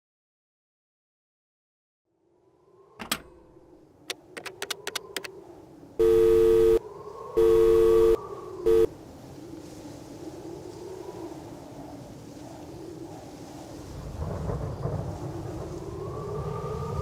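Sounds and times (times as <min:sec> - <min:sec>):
two-note phone tone: 0:06.0 - 0:06.8, 0:07.4 - 0:08.9.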